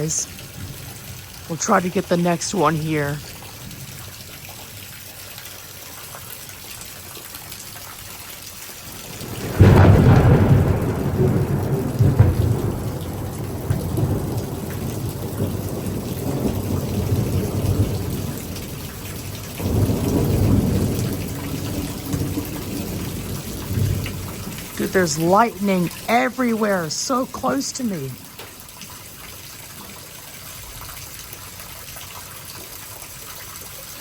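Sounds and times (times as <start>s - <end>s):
heavy rain: 0.0s - 34.0s
thunderclap and rumble: 8.9s - 28.5s.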